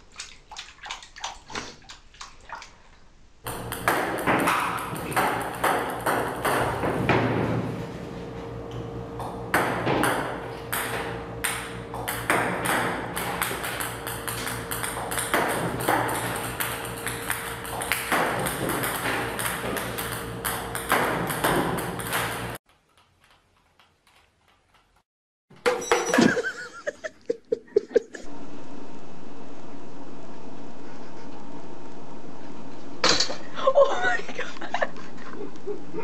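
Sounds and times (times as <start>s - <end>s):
table tennis balls clicking: 3.5s - 7.1s, 9.6s - 25.0s
steady hum: 27.5s - 36.0s.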